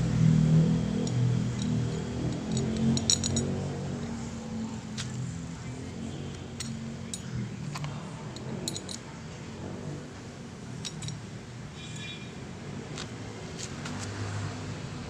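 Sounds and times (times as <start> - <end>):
light metallic clinks: 1.0 - 3.5, 6.6 - 9.2, 10.8 - 12.2.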